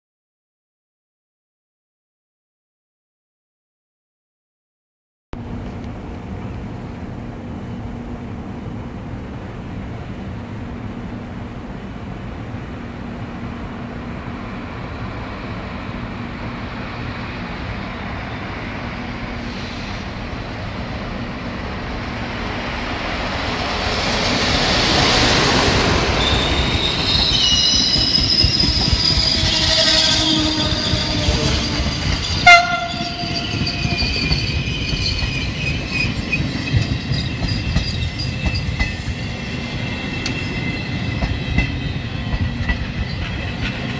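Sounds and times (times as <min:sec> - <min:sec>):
passenger train rumbling past: 0:05.4 - 0:43.9
high-pitched wheel squeal: 0:26.0 - 0:43.6.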